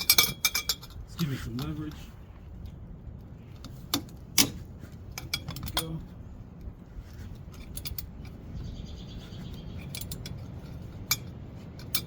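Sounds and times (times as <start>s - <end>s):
wrench clinking on metal: 0.0s - 1.8s, 3.9s - 6.1s, 7.5s - 8.4s, 9.8s - 12.0s.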